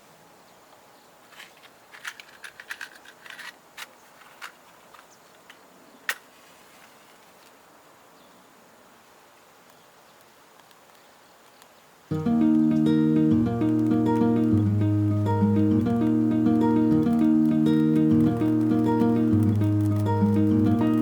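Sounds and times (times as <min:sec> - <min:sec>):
faint hiss: 0:00.0 - 0:21.0
clicks and clinks of gear: 0:01.3 - 0:06.3.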